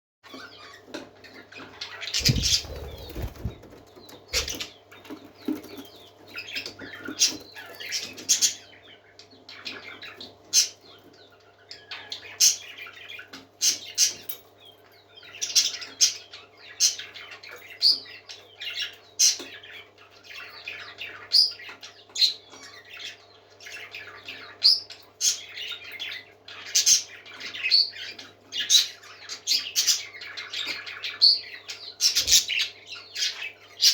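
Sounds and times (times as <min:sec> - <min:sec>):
parakeets chirping and calling: 0:00.3 - 0:14.2
faint low hum: 0:02.0 - 0:06.1
wings fluttering: 0:02.2 - 0:04.7.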